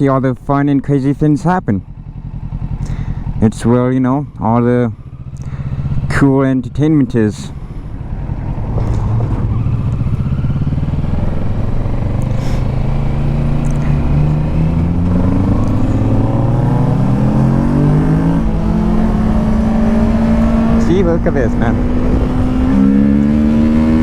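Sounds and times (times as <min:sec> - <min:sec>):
motorcycle engine accelerating: 0:00.8 - 0:24.0.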